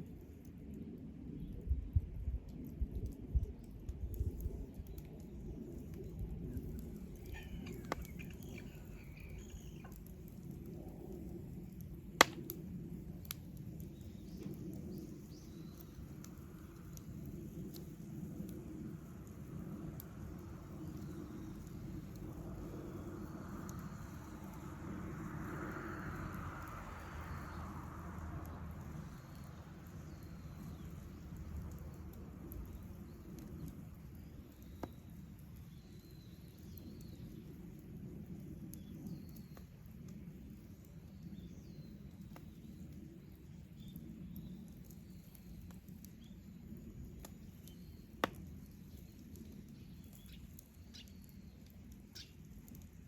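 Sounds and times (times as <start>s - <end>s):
campfire crackling: 0.0s - 53.0s
sharp fire pops: 2.5s - 37.3s, 43.8s - 53.0s
faint bird chirps: 7.2s - 10.1s.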